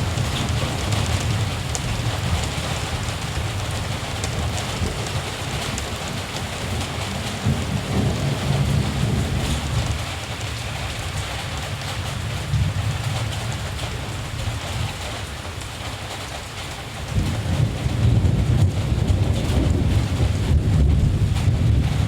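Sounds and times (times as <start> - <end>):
distant thunder rumbling: 0.0 - 10.2, 17.0 - 22.0.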